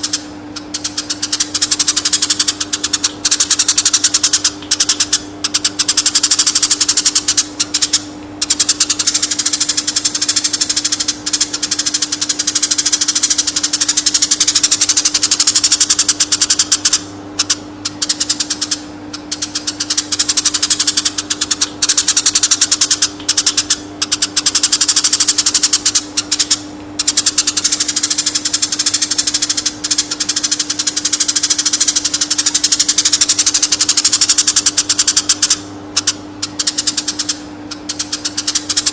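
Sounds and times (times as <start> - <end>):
sparrow chirping: 0.7 - 38.9.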